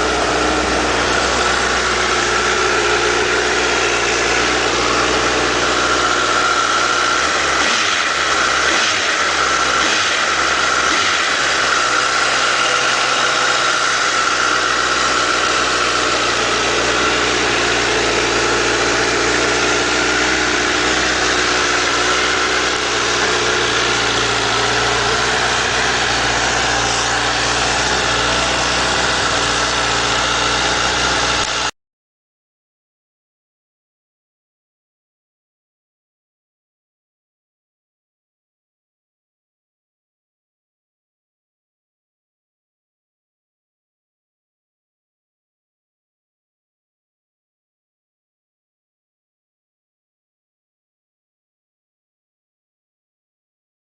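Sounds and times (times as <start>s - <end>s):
motorcycle engine idling: 0.0s - 31.7s.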